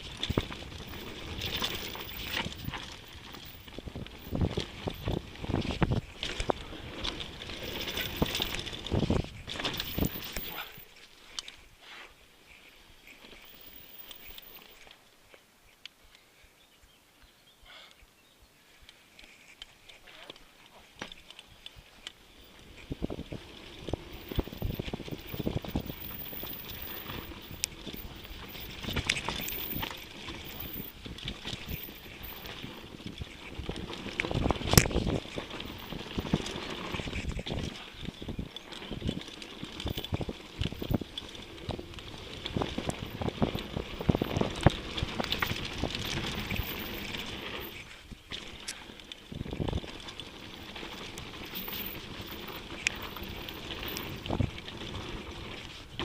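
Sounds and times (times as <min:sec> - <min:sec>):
bike tyres rolling on dirt: 0:00.0 - 0:17.4, 0:18.6 - 0:56.0
wind on microphone: 0:22.7 - 0:47.1.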